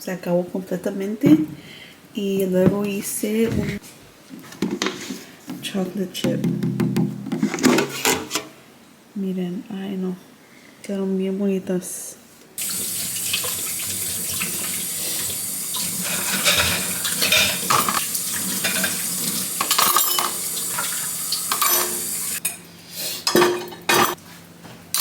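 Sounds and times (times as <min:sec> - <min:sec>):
dishes clinking and knocking: 0:02.6 - 0:03.8, 0:15.8 - 0:22.4, 0:23.3 - 0:24.2
tap running into sink: 0:12.6 - 0:22.4.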